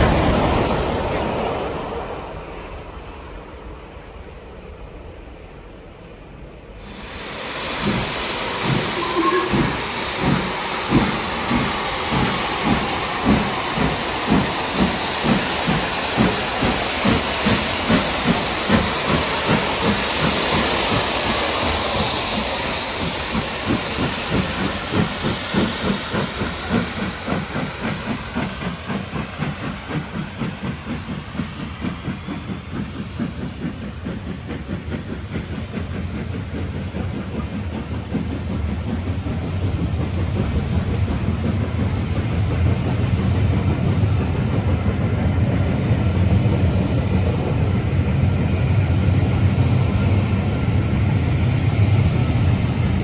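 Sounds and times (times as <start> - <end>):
train passing at speed: 0.0 - 53.0
hissing rush: 6.8 - 43.5.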